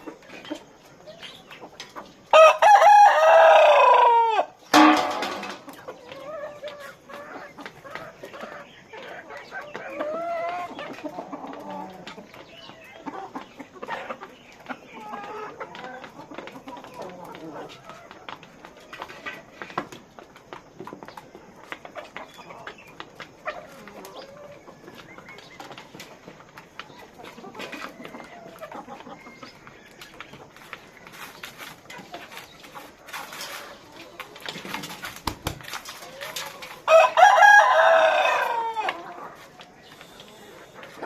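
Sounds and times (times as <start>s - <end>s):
chickens clucking: 0.0s - 41.0s
rooster crowing: 2.3s - 5.2s, 36.9s - 39.1s.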